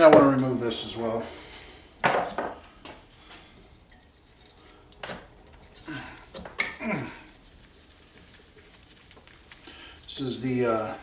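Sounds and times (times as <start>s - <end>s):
metal tools clinking: 3.9s - 7.0s.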